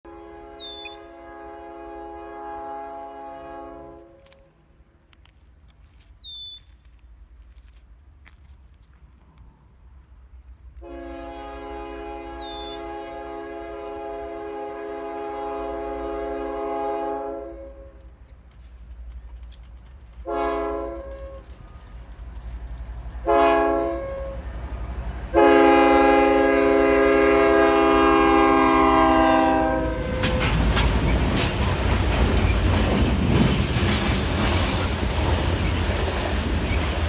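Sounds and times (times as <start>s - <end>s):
locomotive horn blasts: 0.0s - 4.5s, 10.8s - 18.0s, 20.2s - 21.6s, 23.2s - 24.5s, 25.3s - 30.8s
locomotive engine rumble: 17.6s - 37.0s
wheels clattering on rails: 29.9s - 37.0s.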